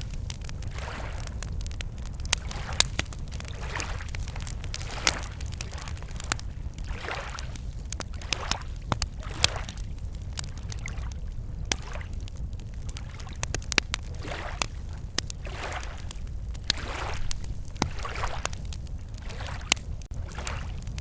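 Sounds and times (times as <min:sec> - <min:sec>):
lake waves lapping on shore: 0:00.0 - 0:01.4, 0:02.0 - 0:09.9, 0:10.6 - 0:11.1, 0:11.7 - 0:12.2, 0:12.9 - 0:13.5, 0:14.1 - 0:20.9
campfire crackling and popping: 0:00.0 - 0:21.0.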